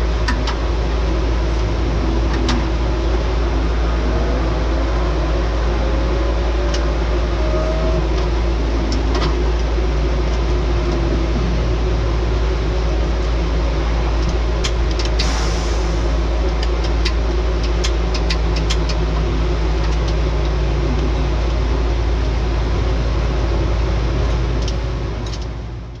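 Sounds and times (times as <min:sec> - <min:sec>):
race car engine rumbling: 0:00.0 - 0:26.0
sharp clicks and rattles: 0:16.5 - 0:20.5.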